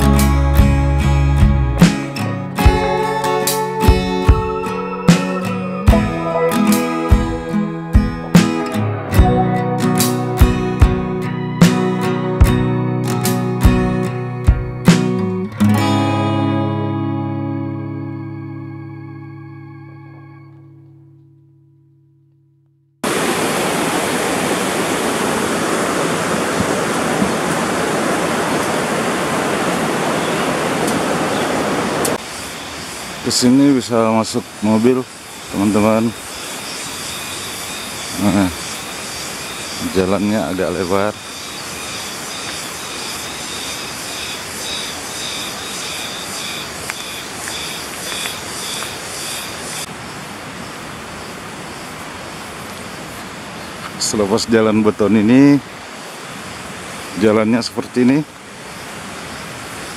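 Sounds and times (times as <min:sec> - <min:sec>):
waterfall rushing: 0:02.5 - 0:12.4, 0:23.0 - 0:59.9
organ music: 0:02.5 - 0:20.8.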